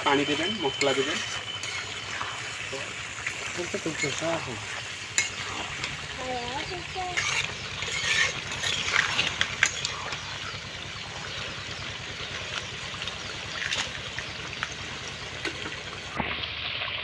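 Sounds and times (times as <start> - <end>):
spatula scraping a pan: 0.0 - 10.2
curry sizzling in a pan: 0.0 - 10.4
steady low hum: 0.0 - 16.7.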